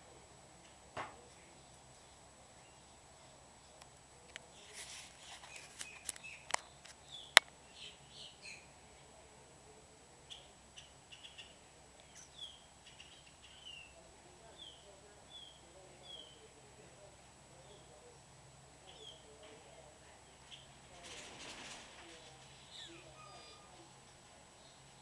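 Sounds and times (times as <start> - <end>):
small birds chirping: 1.4 - 3.8, 4.4 - 9.3, 10.2 - 18.2, 18.8 - 21.3, 22.1 - 25.0.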